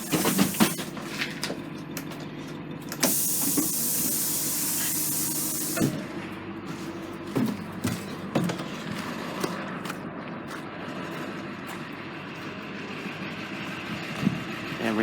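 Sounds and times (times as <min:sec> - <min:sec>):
compressed air hissing: 0:03.1 - 0:05.9.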